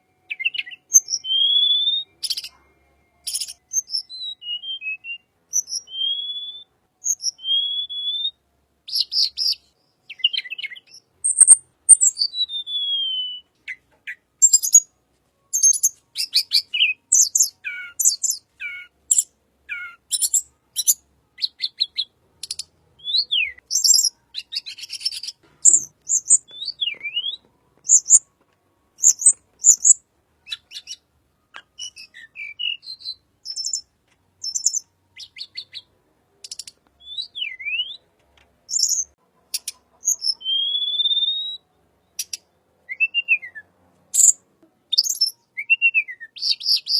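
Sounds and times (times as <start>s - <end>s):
songbird singing: 0.0s - 46.9s.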